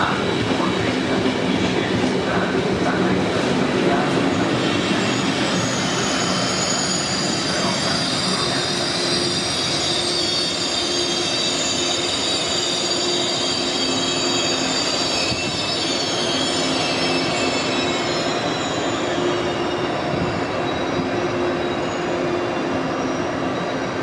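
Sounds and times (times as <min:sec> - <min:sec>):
train rumble: 0:00.0 - 0:09.9
metallic wheel squeal: 0:04.6 - 0:23.9.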